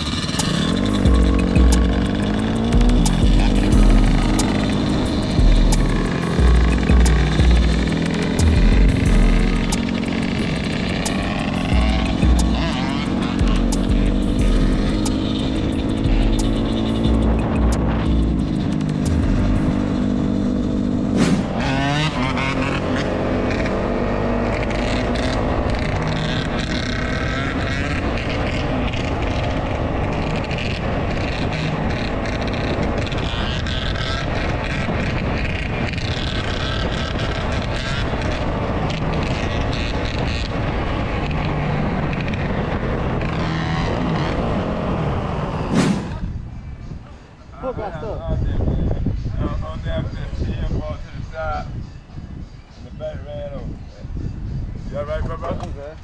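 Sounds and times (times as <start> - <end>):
dirt bike engines revving: 0.0 - 46.5.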